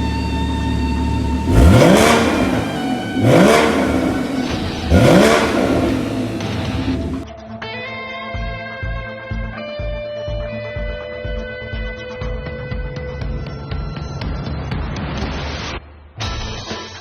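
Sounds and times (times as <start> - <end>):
sports car engine revving: 0.0 - 7.2.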